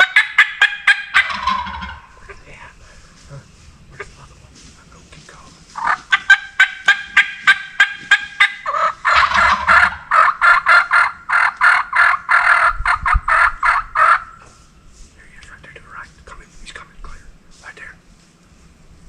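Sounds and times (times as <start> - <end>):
turkey yelping: 0.0 - 2.4, 5.8 - 14.4.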